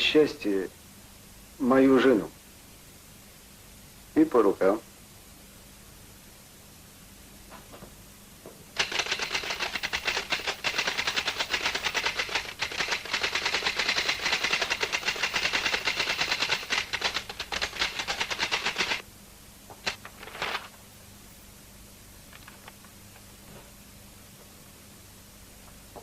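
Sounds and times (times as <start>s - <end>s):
typewriter keys striking: 8.8s - 19.0s.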